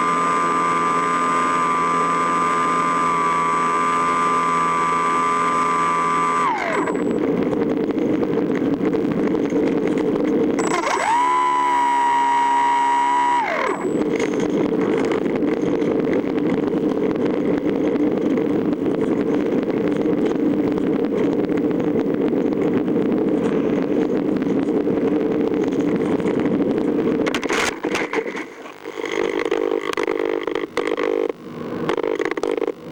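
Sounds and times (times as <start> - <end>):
model plane motor whining: 0.0 - 18.2.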